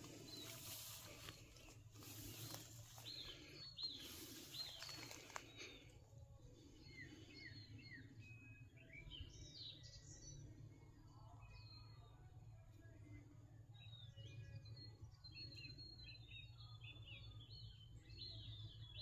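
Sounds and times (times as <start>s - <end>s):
rustling: 0.0s - 5.8s
faint birdsong chirps: 0.0s - 19.0s.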